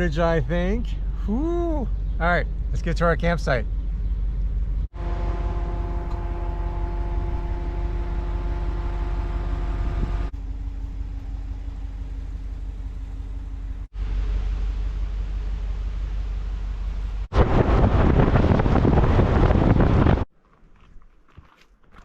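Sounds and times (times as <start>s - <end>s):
truck road and engine rumble: 0.0s - 22.0s
steady whine: 4.4s - 17.7s.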